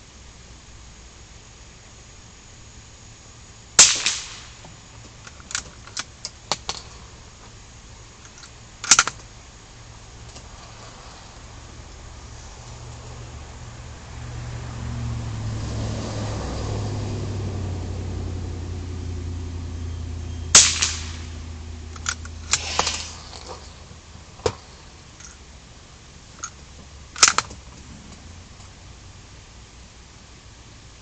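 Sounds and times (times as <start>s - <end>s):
low steady drone: 0.0s - 31.0s
gunshots: 3.8s - 4.6s, 20.5s - 21.4s.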